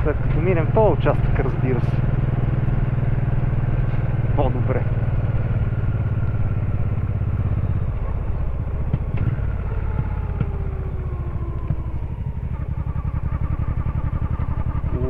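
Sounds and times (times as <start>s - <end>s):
sharp knocks from bumpy road: 0.0s - 13.4s
motorcycle engine running: 0.0s - 15.0s.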